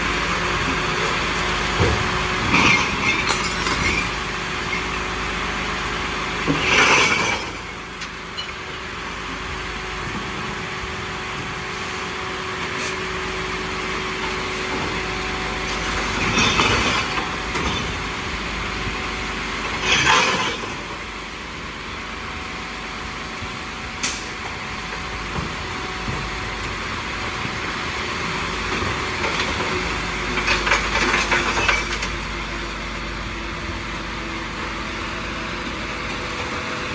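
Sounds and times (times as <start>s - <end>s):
garbage truck engine running: 0.0s - 36.9s.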